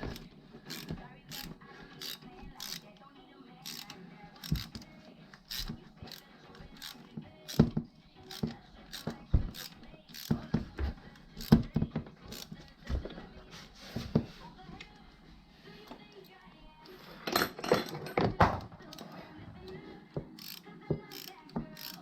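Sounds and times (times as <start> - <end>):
hand tools clicking on metal: 0.0 - 3.0, 3.6 - 10.6, 11.2 - 12.8, 17.3 - 22.0.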